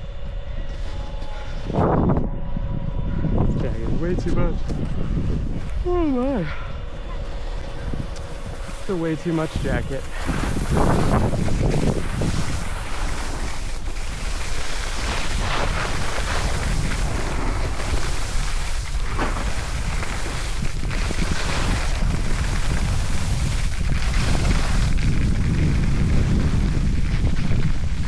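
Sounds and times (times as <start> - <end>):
wind buffeting microphone: 0.0 - 28.0
skis swishing on snow: 8.6 - 28.0.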